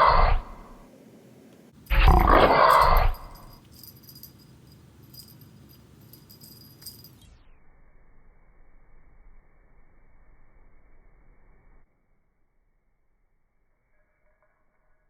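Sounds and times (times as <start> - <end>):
cat meowing loudly: 0.0 - 0.8, 1.9 - 3.5
faint room noise: 0.0 - 7.3.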